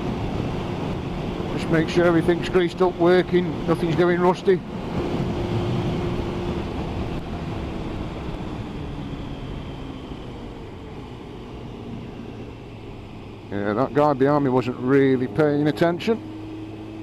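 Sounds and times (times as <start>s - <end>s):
wind noise: 0.0s - 13.0s
motorcycle engine running: 0.0s - 17.0s.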